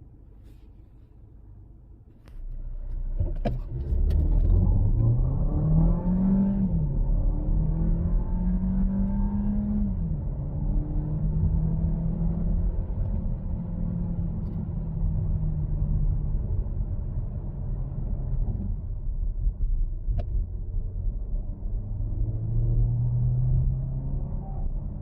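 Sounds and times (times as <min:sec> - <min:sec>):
car engine droning: 0:00.0 - 0:25.0
road rumble: 0:00.0 - 0:25.0.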